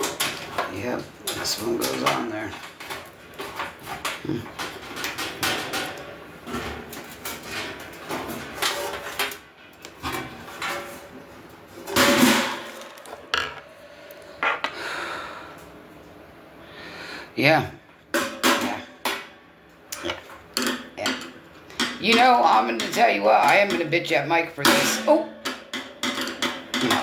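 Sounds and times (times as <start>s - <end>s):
metal grill parts clattering: 0.0s - 13.6s.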